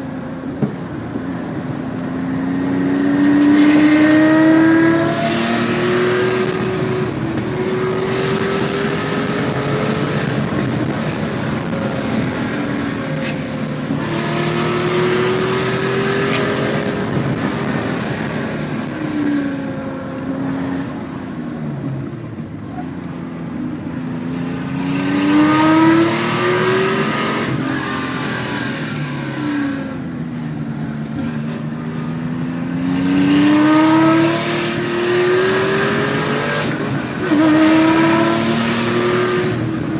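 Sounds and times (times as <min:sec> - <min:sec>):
car engine revving hard: 0:00.0 - 0:39.9.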